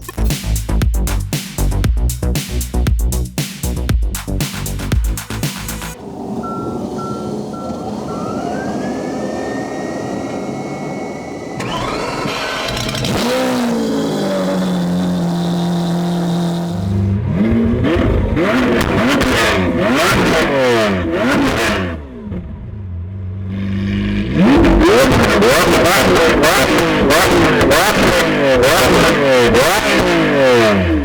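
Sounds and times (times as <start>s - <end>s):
starter whine: 4.8s - 22.6s, 23.8s - 31.0s
sports car engine revving: 7.1s - 31.0s.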